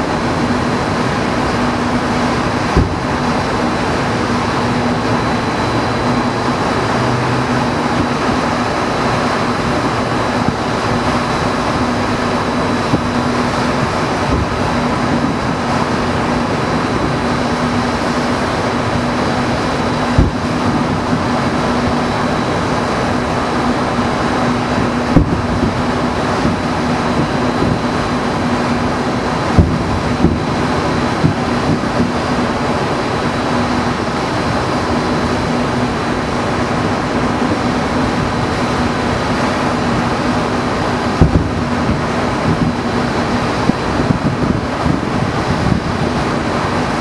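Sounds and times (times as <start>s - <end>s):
low hum: 0.0s - 47.0s
steady rushing noise: 0.0s - 47.0s
distant firework thumps: 2.7s - 3.2s, 20.1s - 20.9s, 25.1s - 25.8s, 26.4s - 27.8s, 29.5s - 30.4s, 41.2s - 42.8s.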